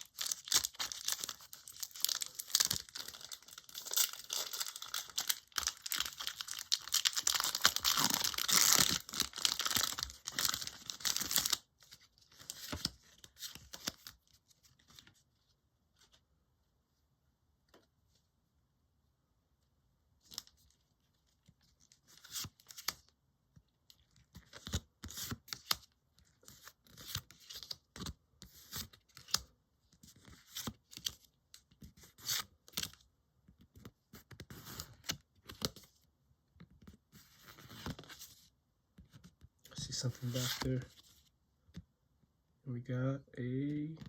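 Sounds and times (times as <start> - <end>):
card pack tearing open: 0.0 - 11.6.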